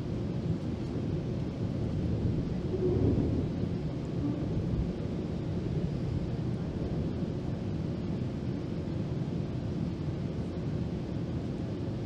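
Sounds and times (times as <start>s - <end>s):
train rumbling from inside coach: 0.2s - 8.2s.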